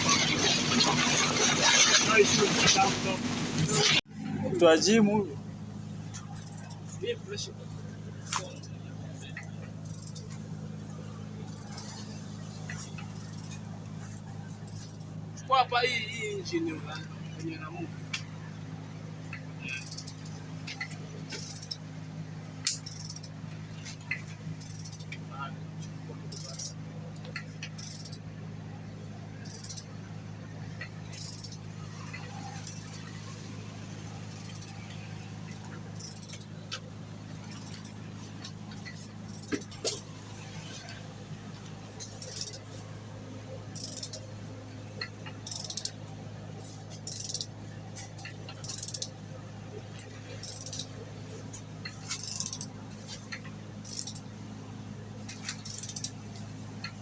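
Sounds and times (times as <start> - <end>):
steady low hum: 0.0 - 57.0
metal tools clinking: 19.4 - 22.0, 22.6 - 25.2, 25.8 - 28.4, 29.0 - 30.0, 30.7 - 33.4, 34.2 - 43.0, 43.6 - 57.0.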